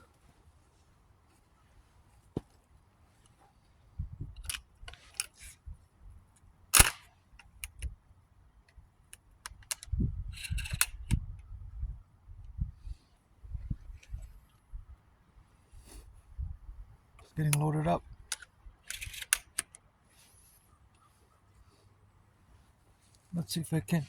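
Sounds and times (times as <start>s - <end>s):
shotgun loading clicks and clacks: 4.4s - 5.5s, 6.4s - 7.9s, 8.7s - 11.2s, 17.2s - 19.8s.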